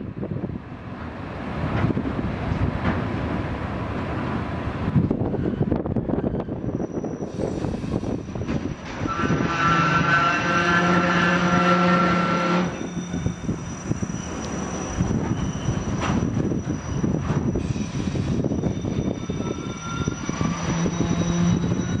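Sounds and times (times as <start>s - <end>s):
train wheels rumbling and clattering: 0.0s - 22.0s
locomotive droning tone: 5.0s - 22.0s
faint high squeal: 5.3s - 22.0s.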